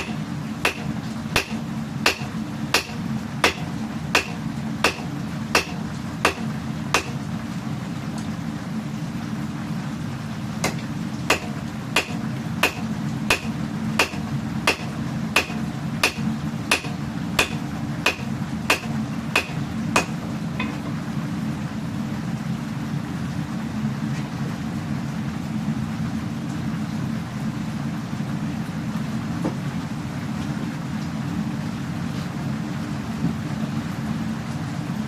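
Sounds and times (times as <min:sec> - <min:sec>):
hammer striking steel on anvil: 0:00.0 - 0:07.2, 0:10.6 - 0:20.8.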